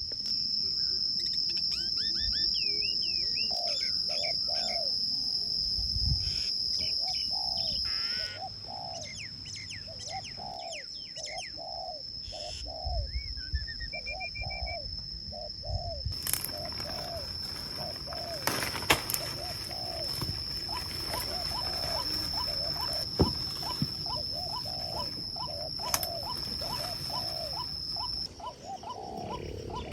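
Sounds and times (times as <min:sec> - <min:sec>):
high bird chirps: 0:16.4 - 0:29.9
steady high-pitched tone: 0:16.7 - 0:29.9.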